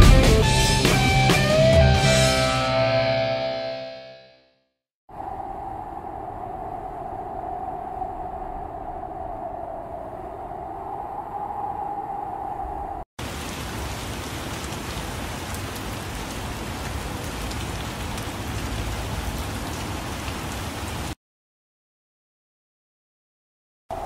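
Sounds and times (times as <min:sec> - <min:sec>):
steady rain falling: 0:13.2 - 0:21.2.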